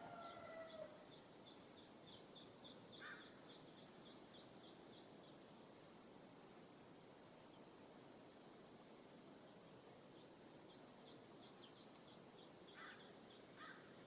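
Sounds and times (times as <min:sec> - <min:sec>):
high bird trill: 0:02.2 - 0:04.8, 0:11.1 - 0:14.0
harsh cawing bird call: 0:03.0 - 0:03.4, 0:12.7 - 0:14.0.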